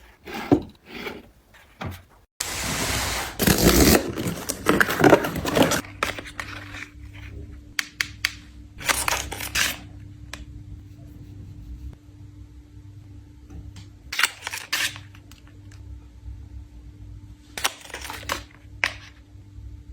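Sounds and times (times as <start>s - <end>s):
packaging rustling and tearing: 3.4s - 7.0s, 8.8s - 9.8s
faint steady hum: 3.4s - 19.9s.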